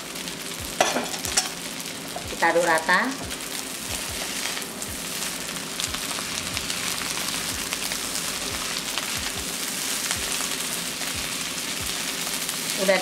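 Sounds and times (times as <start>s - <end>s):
rice sizzling in a wok: 0.0s - 13.0s
spatula strokes in a wok: 3.9s - 12.8s.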